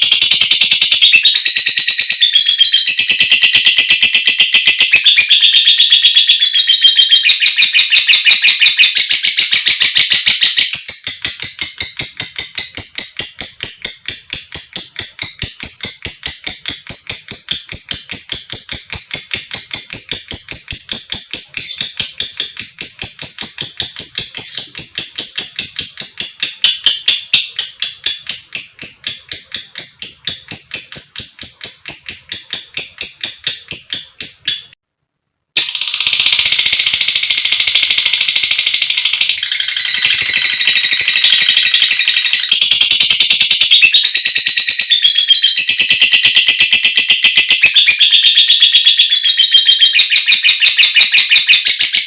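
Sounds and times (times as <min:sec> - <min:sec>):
lovebird sharp ticking notes: 0:00.0 - 0:34.8, 0:35.6 - 0:52.0
lovebird shrill chattering trill: 0:35.6 - 0:52.0.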